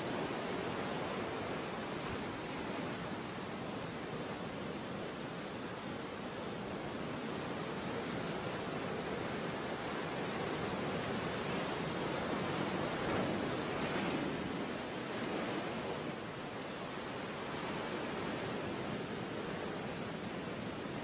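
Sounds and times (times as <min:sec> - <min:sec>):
sea surf waves: 0:00.0 - 0:21.0.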